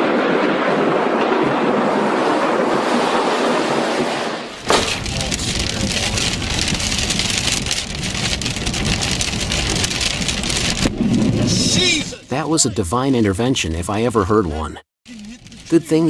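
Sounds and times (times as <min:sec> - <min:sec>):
heavy rain patter: 0:00.0 - 0:12.2
low thunder rumble: 0:00.0 - 0:12.2
thunder crack: 0:00.0 - 0:12.3.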